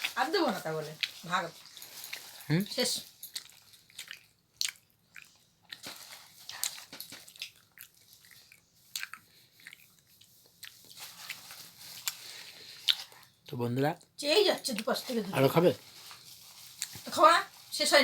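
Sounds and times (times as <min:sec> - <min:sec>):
person chewing sweets: 0:00.9 - 0:14.2.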